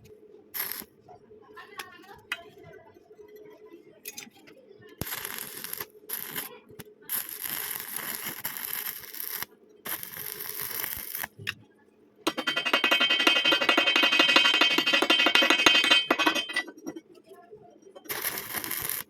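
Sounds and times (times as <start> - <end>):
welding arc crackling and hissing: 0.6 - 0.9, 5.0 - 11.4, 18.1 - 19.0.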